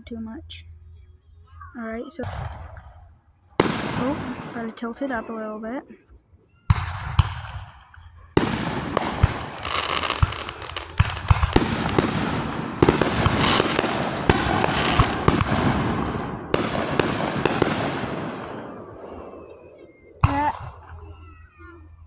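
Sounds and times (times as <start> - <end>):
fireworks bangs: 2.2 - 6.0, 6.7 - 21.7
fireworks crackling: 2.2 - 6.0, 6.7 - 21.6.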